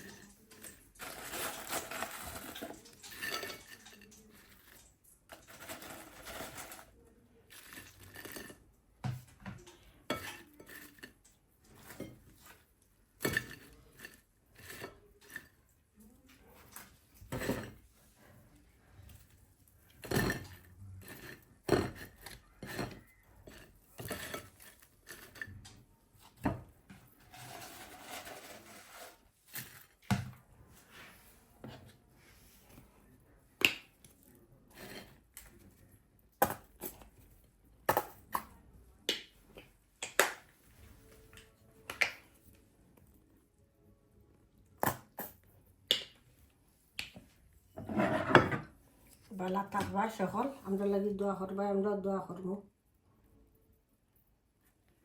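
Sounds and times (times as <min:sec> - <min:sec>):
dishes and cutlery clinking: 0:00.0 - 0:15.7, 0:16.4 - 0:18.0, 0:19.1 - 0:30.3, 0:47.8 - 0:48.8.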